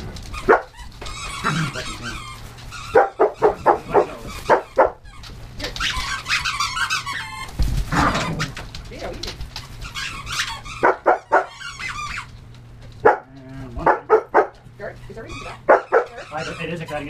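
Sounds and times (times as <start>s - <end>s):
dogs barking: 0.0s - 5.1s, 9.9s - 17.0s
dogs whining and yipping: 0.0s - 8.6s, 9.6s - 13.2s, 13.8s - 17.0s.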